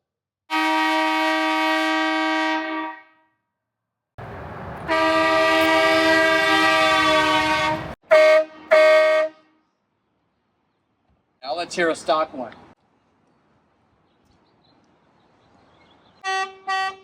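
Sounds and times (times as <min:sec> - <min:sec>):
car horn blasts: 0:04.8 - 0:09.5, 0:16.2 - 0:17.0.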